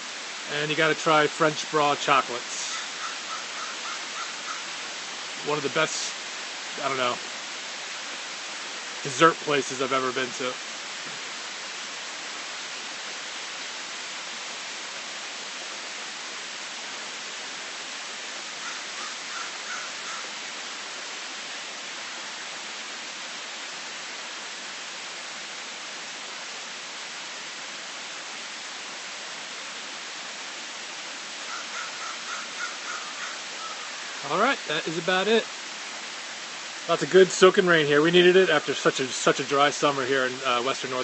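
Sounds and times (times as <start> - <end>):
heavy rain falling: 0.0 - 41.0
bird calls: 2.6 - 4.8, 18.6 - 20.4, 31.4 - 34.4.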